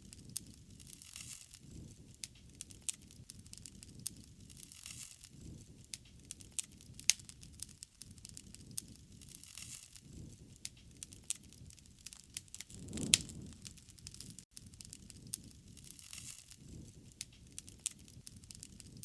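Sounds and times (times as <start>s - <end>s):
bonfire crackling and popping: 0.1s - 19.0s
low rumble: 12.6s - 13.7s.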